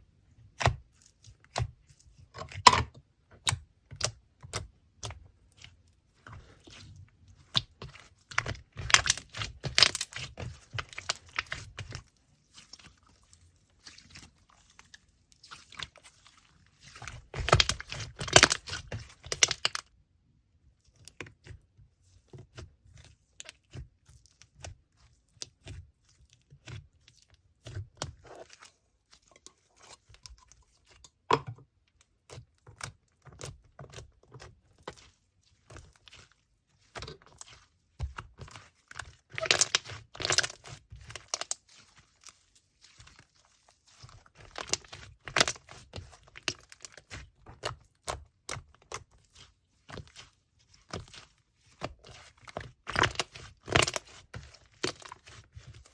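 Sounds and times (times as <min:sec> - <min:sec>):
slime crackling and popping: 0:07.6 - 0:12.0, 0:16.8 - 0:19.8, 0:38.2 - 0:42.4, 0:43.9 - 0:55.8.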